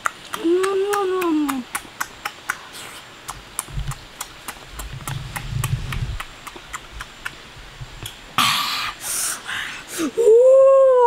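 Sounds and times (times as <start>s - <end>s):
steady sharp clicks: 0.0s - 2.6s, 3.2s - 7.4s
muffled chewing and mouth sounds: 1.5s - 7.4s.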